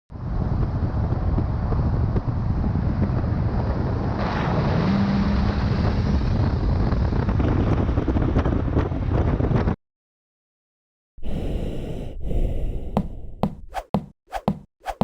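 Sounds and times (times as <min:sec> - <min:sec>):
wind buffeting microphone: 0:00.1 - 0:04.3, 0:05.4 - 0:09.8.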